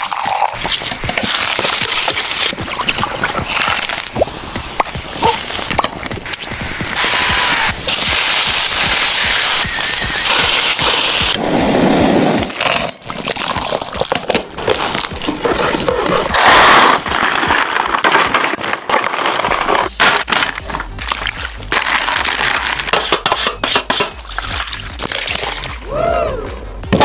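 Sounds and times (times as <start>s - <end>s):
food sizzling in hot fat: 0.2s - 12.4s.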